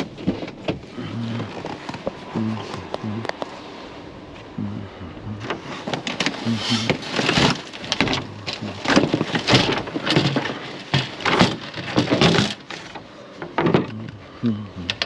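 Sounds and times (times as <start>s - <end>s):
scrap clattering and banging: 5.5s - 14.0s.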